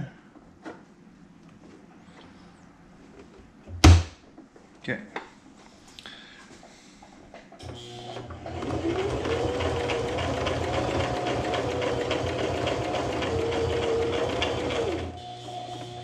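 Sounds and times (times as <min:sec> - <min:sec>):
sewing machine stitching: 0:07.6 - 0:16.0.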